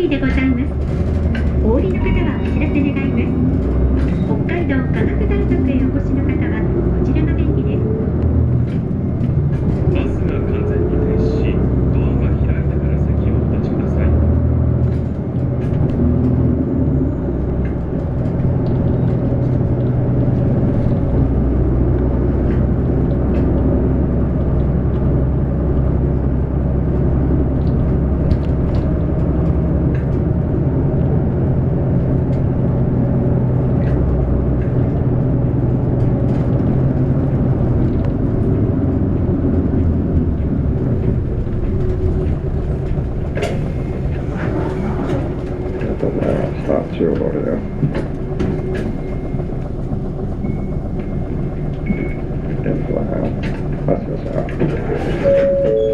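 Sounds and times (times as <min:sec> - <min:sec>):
faint clicks and rattles: 0:00.0 - 0:07.6, 0:17.4 - 0:55.3
bus diesel engine droning: 0:00.0 - 0:55.9.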